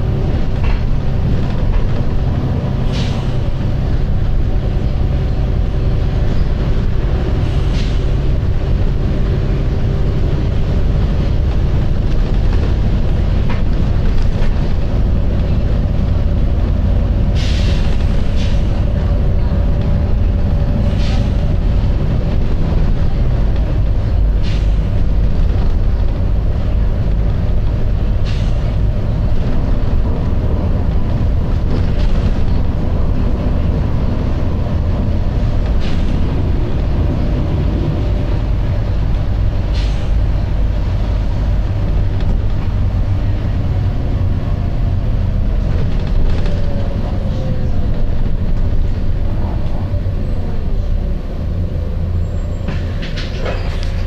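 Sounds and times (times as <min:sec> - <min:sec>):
bus engine rumbling: 0:00.0 - 0:54.0
air brake hisses: 0:17.4 - 0:18.7.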